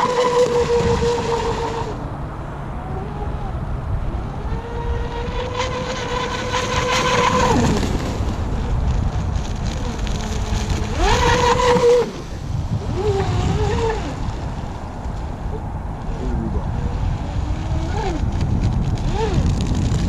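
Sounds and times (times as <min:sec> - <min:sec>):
electric motor whining: 0:00.0 - 0:02.1, 0:02.8 - 0:14.4
rush of wind and water: 0:00.0 - 0:20.0.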